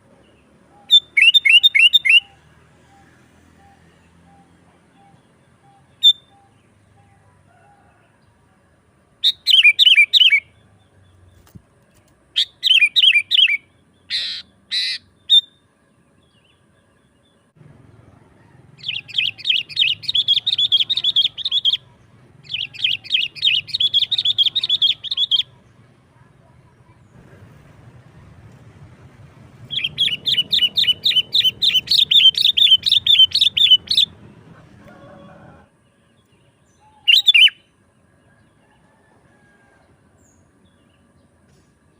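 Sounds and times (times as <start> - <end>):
bulbul warbling calls: 0.7 - 6.6, 12.4 - 15.5, 18.8 - 25.7, 29.6 - 34.2, 36.8 - 37.6
harsh scratchy bird calls: 11.2 - 15.5, 18.8 - 25.5, 29.7 - 34.1
bird chattering: 12.4 - 15.5, 18.8 - 25.6, 29.7 - 34.6.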